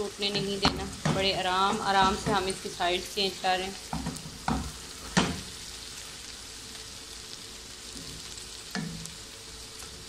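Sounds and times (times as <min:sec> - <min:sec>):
okra sizzling in oil: 0:00.0 - 0:10.0
wooden spatula knocking pan: 0:00.3 - 0:02.5.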